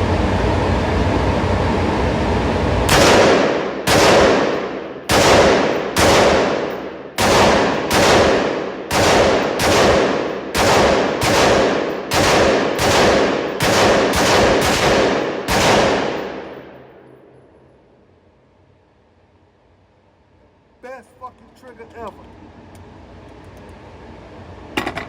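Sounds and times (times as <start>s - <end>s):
gunshots with long echo: 2.9s - 17.5s.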